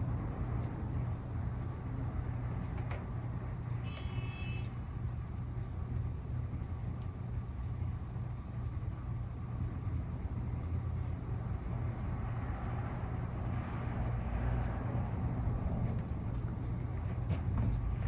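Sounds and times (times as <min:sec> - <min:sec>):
vehicle engine rumbling: 0:08.7 - 0:18.0.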